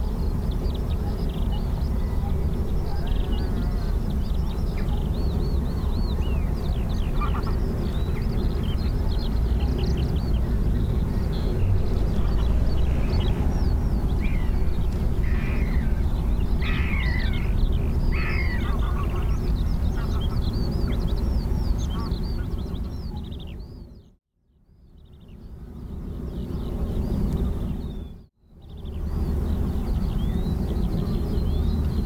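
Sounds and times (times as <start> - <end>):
low rumble: 0.0 - 21.6
birds chirping: 0.0 - 24.1, 25.0 - 32.0.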